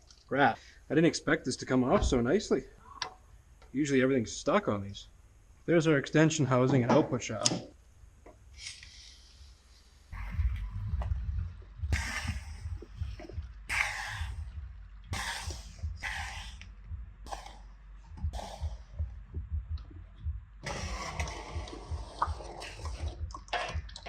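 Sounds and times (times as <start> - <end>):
low steady rumble: 1.3 - 5.7, 9.3 - 24.0.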